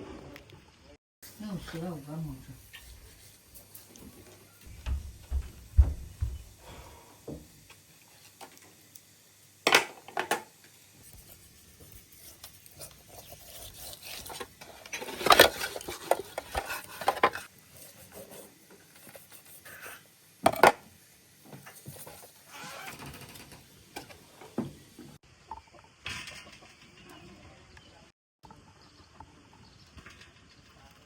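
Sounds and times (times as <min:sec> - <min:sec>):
pots and dishes clinking: 0:20.4 - 0:20.8.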